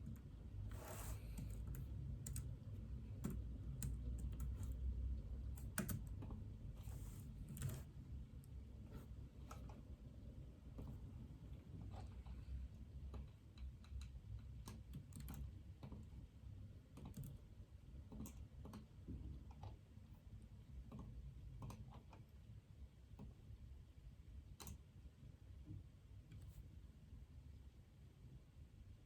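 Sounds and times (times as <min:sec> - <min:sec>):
low room hum: 0:00.0 - 0:29.0
typing on computer keyboard: 0:01.1 - 0:04.8, 0:05.4 - 0:06.4, 0:07.4 - 0:07.9, 0:13.8 - 0:16.0, 0:16.9 - 0:17.4.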